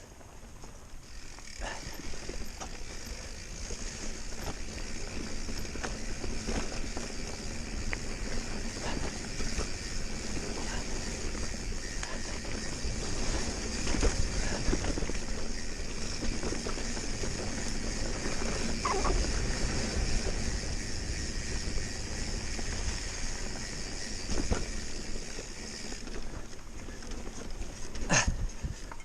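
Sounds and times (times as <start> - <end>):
tyre and drivetrain noise: 0.0 - 29.0
wind rumble on microphone: 28.1 - 29.0.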